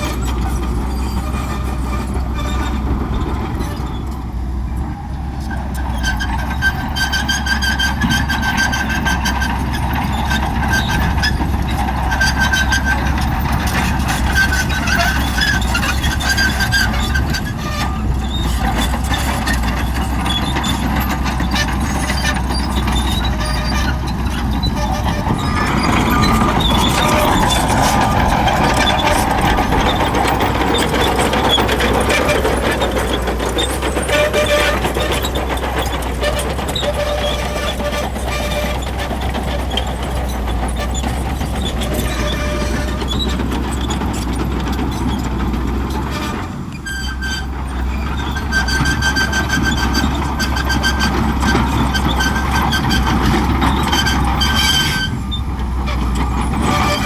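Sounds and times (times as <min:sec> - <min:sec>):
bulldozer engine rumble: 0:00.0 - 0:57.0
high-pitched squeals: 0:12.2 - 0:44.3.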